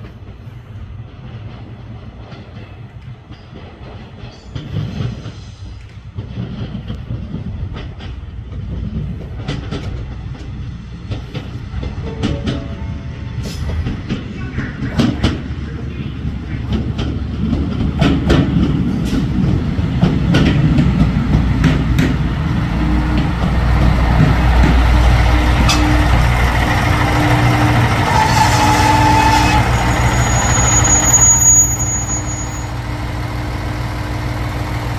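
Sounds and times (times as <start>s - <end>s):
train wheels clacking over rail joints: 0.0s - 34.9s
diesel engine droning: 9.0s - 34.9s
brake squeals: 20.0s - 34.9s.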